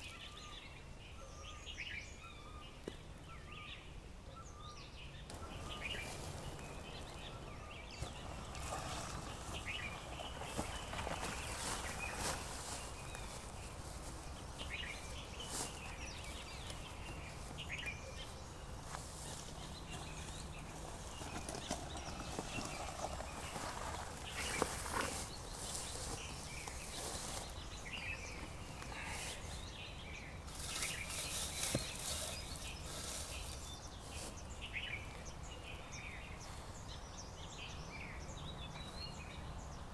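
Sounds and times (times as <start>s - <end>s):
low background noise: 0.0s - 39.9s
birds chirping: 4.4s - 39.9s.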